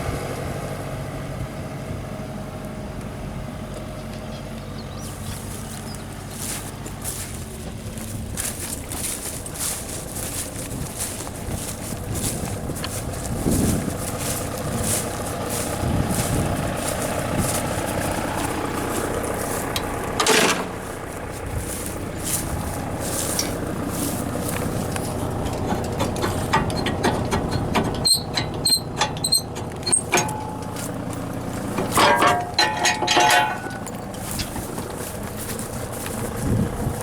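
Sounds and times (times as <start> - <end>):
tractor and baler clatter: 0.0 - 37.0
short sharp high squeaks: 27.6 - 30.8.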